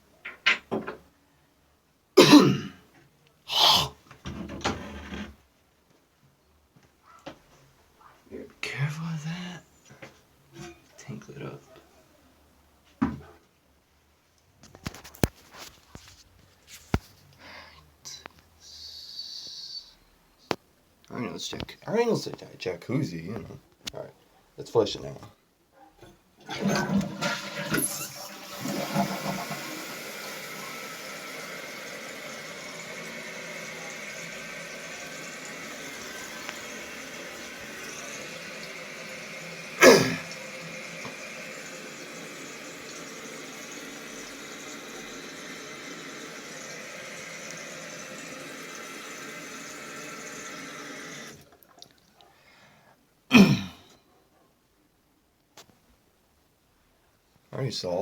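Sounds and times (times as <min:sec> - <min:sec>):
toilet flushing: 0:02.2 - 0:02.6, 0:26.4 - 0:51.5
tank refilling with hissing valve: 0:26.5 - 0:51.4.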